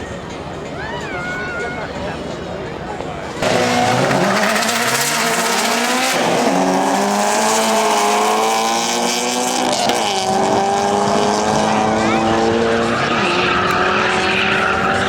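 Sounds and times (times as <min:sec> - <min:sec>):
car engine at high revs: 0:03.4 - 0:15.0.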